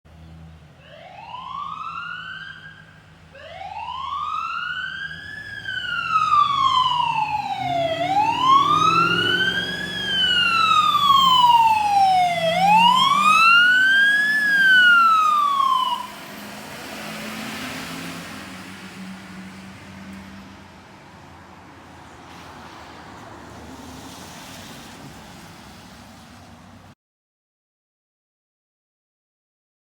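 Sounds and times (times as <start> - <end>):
siren wailing: 0.8 - 16.5.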